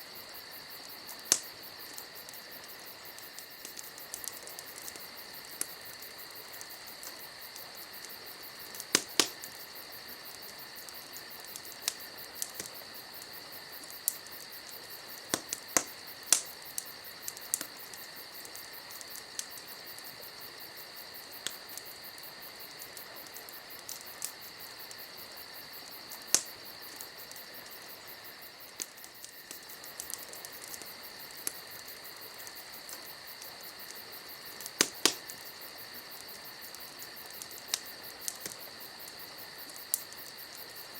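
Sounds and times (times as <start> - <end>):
campfire crackling and popping: 0.0 - 40.9
night insects chirping: 0.0 - 40.9.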